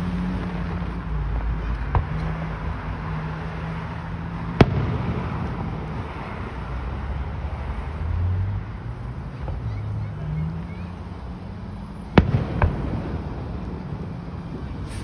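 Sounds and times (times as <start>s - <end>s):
fireworks bangs: 1.8s - 3.4s, 4.4s - 6.7s, 8.9s - 11.2s, 12.0s - 15.0s.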